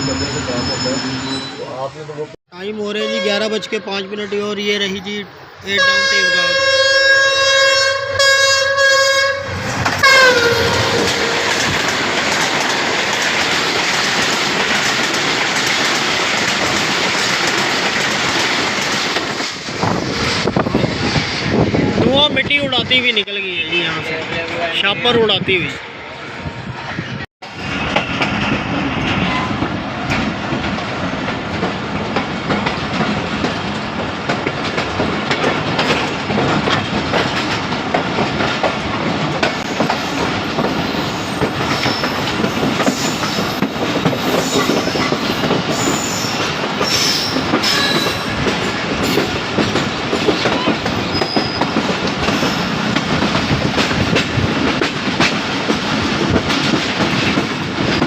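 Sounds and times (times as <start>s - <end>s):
high-pitched wheel squeals: 0.0s - 1.9s, 50.6s - 51.8s
train rumbling along track: 0.0s - 58.0s
clickety-clack of train wheels: 9.6s - 21.8s, 26.9s - 58.0s.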